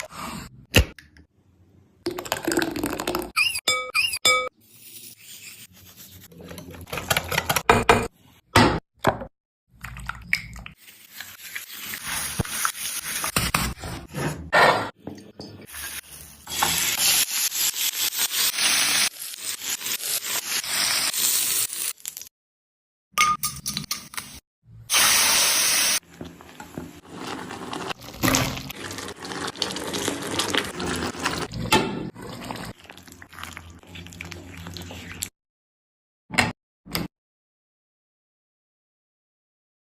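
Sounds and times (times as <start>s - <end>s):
rubbing and scraping strokes: 4.6s - 6.4s.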